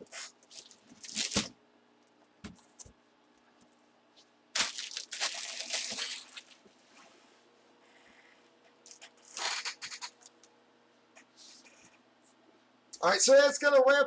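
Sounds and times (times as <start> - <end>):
card packaging crinkling: 0.2 - 1.5, 4.6 - 6.6.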